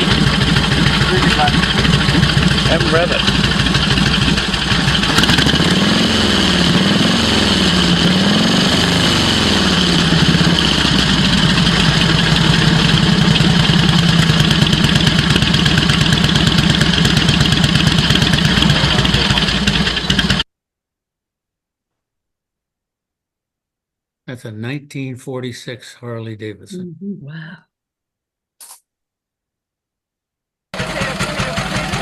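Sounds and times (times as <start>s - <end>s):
motorcycle engine revving and idling: 0.0s - 20.4s, 30.8s - 32.0s.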